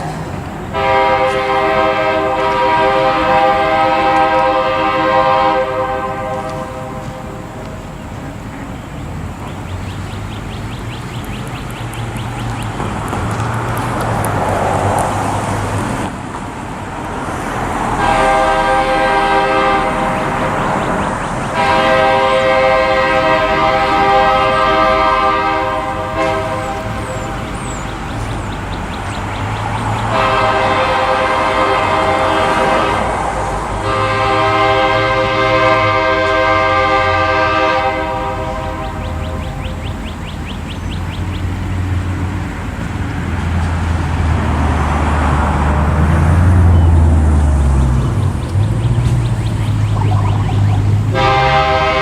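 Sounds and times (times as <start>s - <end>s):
distant locomotive air horn blasts: 0.0s - 8.0s, 17.9s - 27.6s, 30.0s - 39.9s, 50.0s - 52.0s.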